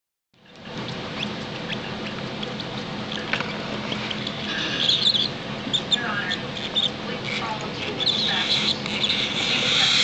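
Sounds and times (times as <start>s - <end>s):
chicks making squeaky begging chirps: 3.8s - 10.0s.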